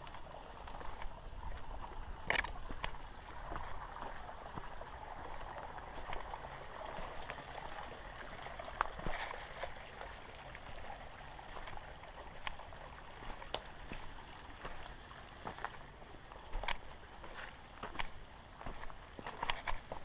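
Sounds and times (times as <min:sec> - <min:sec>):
creek water rushing: 0:00.0 - 0:20.0
sharp clicks and crunches: 0:02.3 - 0:02.6.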